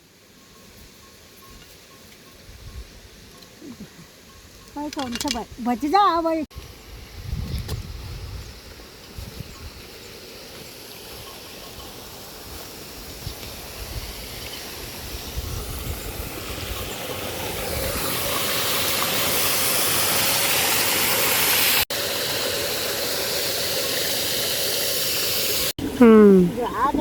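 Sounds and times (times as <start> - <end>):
water rushing: 16.0 - 27.0.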